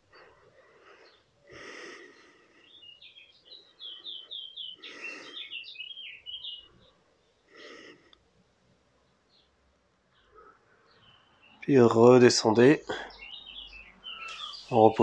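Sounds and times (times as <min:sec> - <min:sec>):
short breaths: 0:00.1 - 0:05.7, 0:07.5 - 0:08.2
small bird singing chirps: 0:02.1 - 0:08.2, 0:09.1 - 0:15.0.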